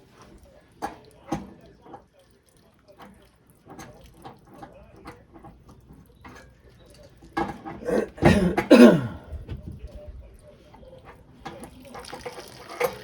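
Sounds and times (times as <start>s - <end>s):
man coughing: 7.8s - 9.5s.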